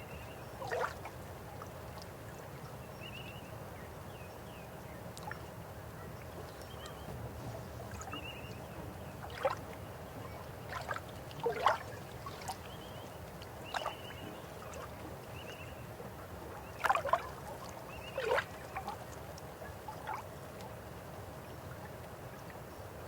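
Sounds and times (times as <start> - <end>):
river water flowing: 5.0 - 23.0
gurgling water plops: 10.6 - 15.2, 16.6 - 19.2.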